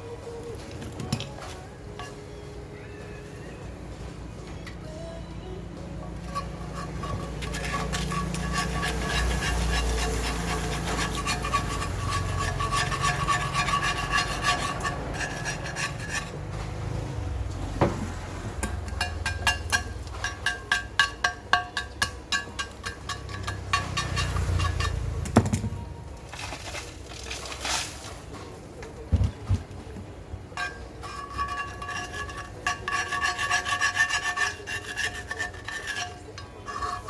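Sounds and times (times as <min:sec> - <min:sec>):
hand tool scraping: 0:06.2 - 0:17.2, 0:18.5 - 0:25.3, 0:30.5 - 0:37.0.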